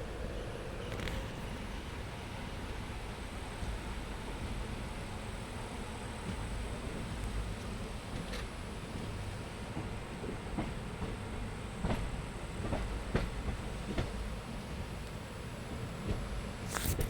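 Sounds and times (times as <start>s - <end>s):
train rumbling along track: 0.0s - 17.0s.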